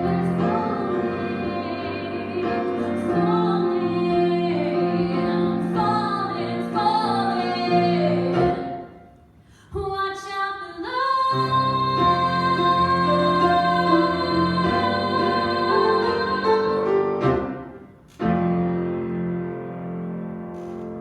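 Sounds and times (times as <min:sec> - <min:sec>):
woman singing ballad: 0:00.0 - 0:08.8, 0:09.7 - 0:17.1
musical accompaniment: 0:11.4 - 0:21.0.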